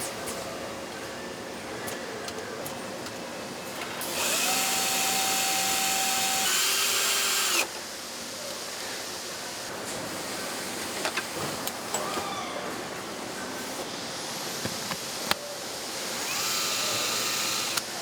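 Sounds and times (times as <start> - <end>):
power tool whirring: 3.9 - 7.8, 16.0 - 18.0.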